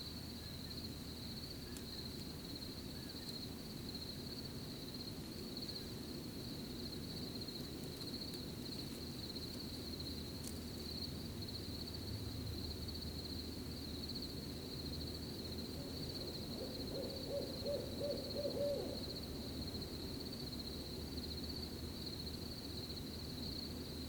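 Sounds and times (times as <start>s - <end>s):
owl hooting: 15.8s - 19.2s.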